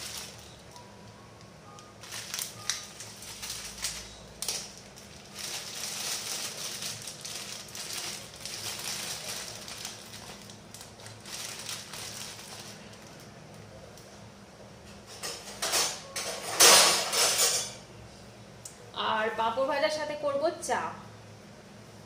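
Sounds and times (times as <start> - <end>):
plastic packet crinkling: 0.0 - 0.7, 1.8 - 13.6.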